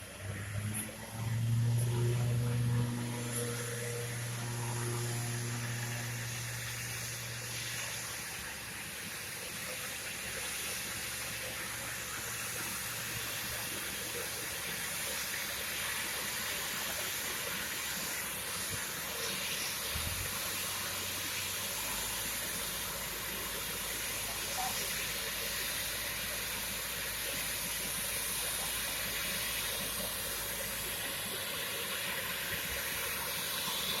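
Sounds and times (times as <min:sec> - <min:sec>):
low hum: 0:00.0 - 0:08.7.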